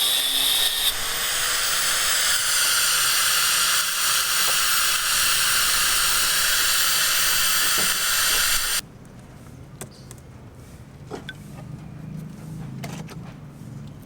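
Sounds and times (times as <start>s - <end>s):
loud steady hiss: 0.6s - 8.8s.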